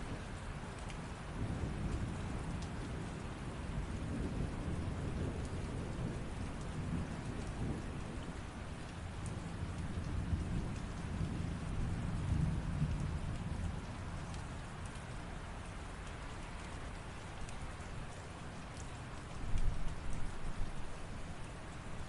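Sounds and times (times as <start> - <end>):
light rain: 0.0 - 22.0
raindrop ticks: 0.0 - 22.0.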